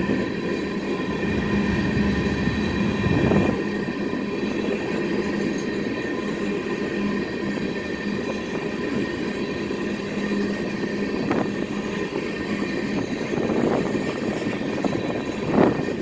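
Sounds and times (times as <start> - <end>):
train wheels rumbling on rail: 0.0 - 16.0
low hum: 0.6 - 4.0.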